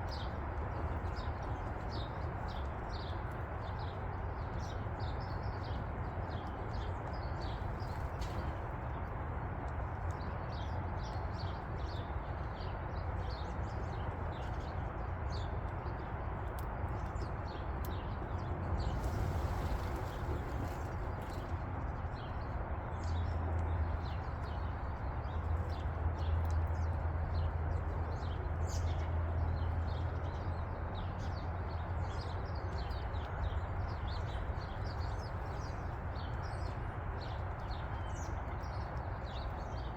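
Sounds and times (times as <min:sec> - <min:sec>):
songbirds chirping: 0:00.0 - 0:39.9
steady low rumble: 0:18.7 - 0:22.0.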